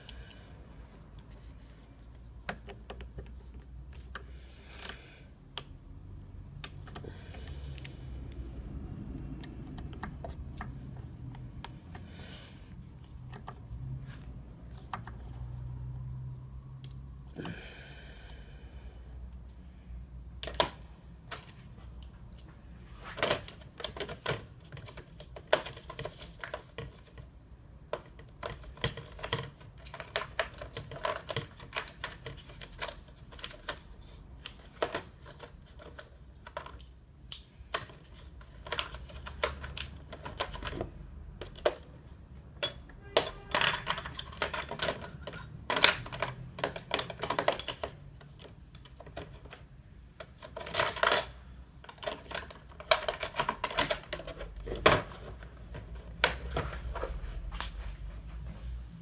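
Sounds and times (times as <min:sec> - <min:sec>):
clicks and knocks of tools: 0:20.4 - 0:22.6, 0:34.4 - 0:41.9, 0:42.6 - 0:57.8.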